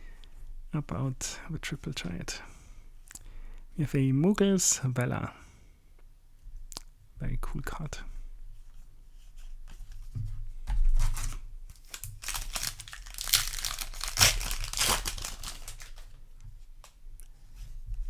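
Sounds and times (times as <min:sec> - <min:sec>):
foil wrapper tearing and crinkling: 0:11.0 - 0:16.2.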